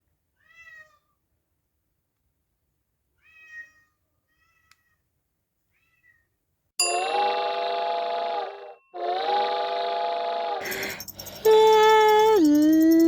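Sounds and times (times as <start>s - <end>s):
cat meowing: 3.2s - 5.0s.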